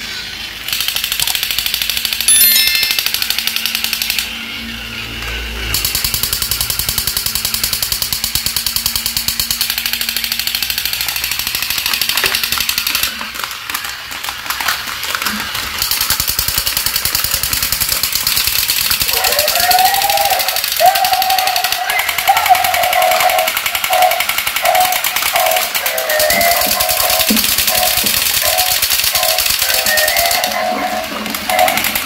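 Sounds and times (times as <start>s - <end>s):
toy motors rattling: 0.5s - 4.4s, 5.6s - 32.0s
toy gun effects: 0.6s - 4.4s, 5.8s - 32.0s
plastic figures clattering: 10.9s - 32.0s.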